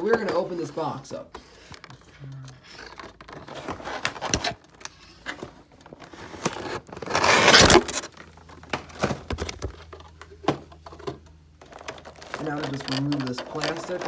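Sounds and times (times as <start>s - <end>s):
cardboard scrape: 2.7s - 8.2s
cardboard packaging clicks and knocks: 5.3s - 14.0s.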